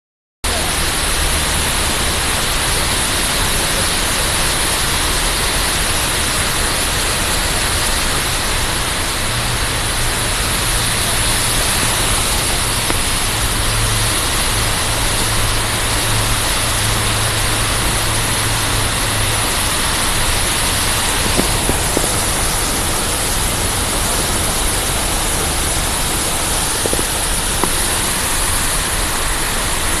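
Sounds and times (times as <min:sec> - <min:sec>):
car engine hum: 0:00.5 - 0:30.0
tyres throwing up water: 0:10.4 - 0:29.9.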